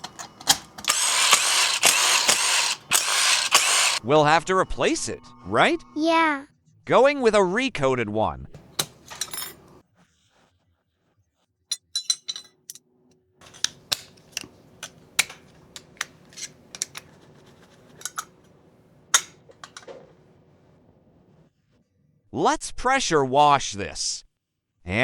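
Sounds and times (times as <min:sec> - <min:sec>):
hard plastic parts clicking: 0:00.0 - 0:04.0, 0:08.6 - 0:09.8, 0:13.4 - 0:20.1.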